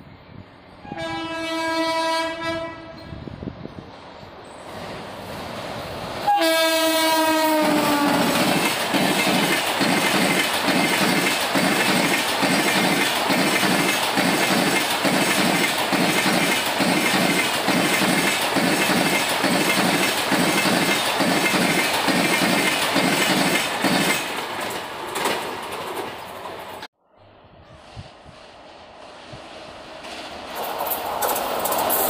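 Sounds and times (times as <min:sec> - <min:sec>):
locomotive horn blowing: 0:00.8 - 0:03.0, 0:06.2 - 0:08.5
train wheels clattering over rail joints: 0:07.5 - 0:26.9, 0:29.9 - 0:32.0.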